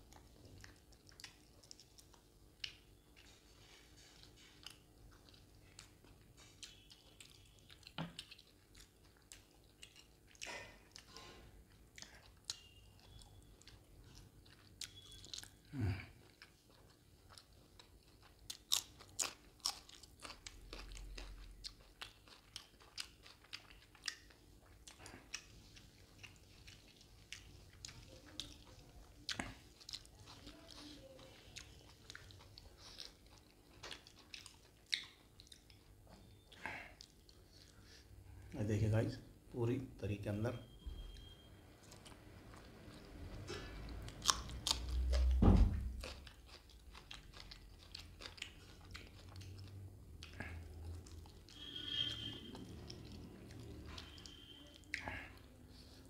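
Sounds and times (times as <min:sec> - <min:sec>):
close chewing with wet clicks: 0:00.0 - 0:38.2, 0:41.0 - 0:56.0
deep thud: 0:45.3 - 0:46.0.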